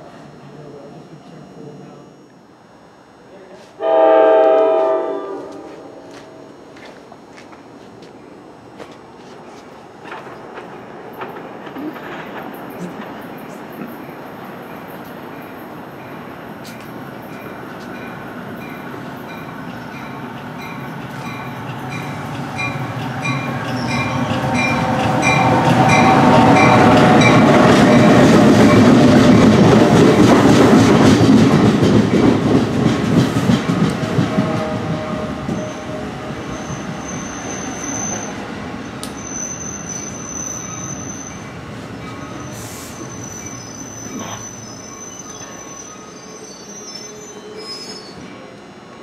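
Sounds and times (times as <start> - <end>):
commuter train rumble: 3.5 - 49.0
high wheel squeal: 35.4 - 38.4, 39.1 - 48.3.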